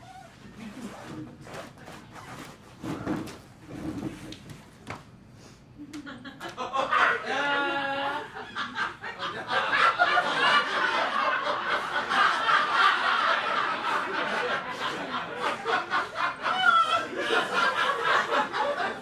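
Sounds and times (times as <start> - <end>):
audience laughing: 5.8 - 19.0.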